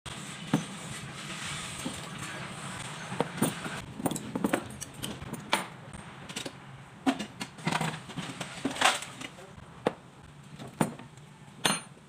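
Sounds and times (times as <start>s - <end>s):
metal tools clinking and knocking: 11.6s - 12.0s.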